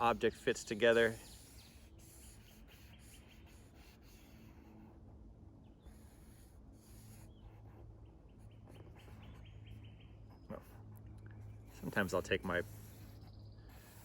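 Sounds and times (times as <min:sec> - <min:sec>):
low steady hum: 0:00.0 - 0:14.0
faint bird chirps: 0:05.6 - 0:14.0.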